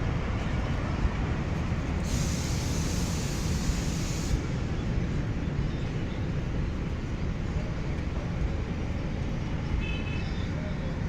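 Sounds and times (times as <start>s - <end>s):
diesel locomotive rumble: 0.0s - 11.0s
train hiss: 1.9s - 5.0s.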